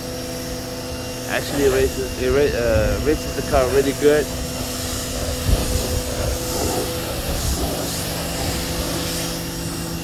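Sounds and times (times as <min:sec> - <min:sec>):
pressure washer water jet hissing: 0:00.0 - 0:10.0.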